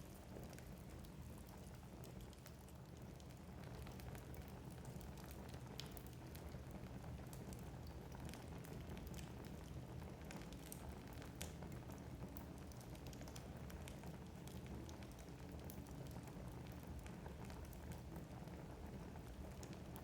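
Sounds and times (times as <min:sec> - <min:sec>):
fire rumbling in fireplace: 0:00.0 - 0:20.0
crackles and pops of logs: 0:03.8 - 0:06.4, 0:10.3 - 0:11.7.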